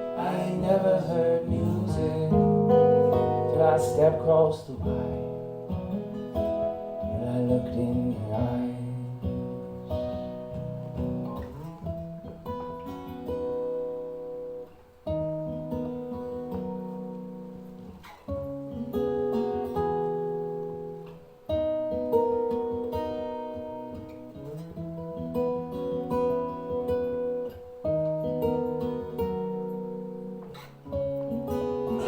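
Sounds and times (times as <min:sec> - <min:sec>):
acoustic guitar chords ringing: 0:00.0 - 0:32.0.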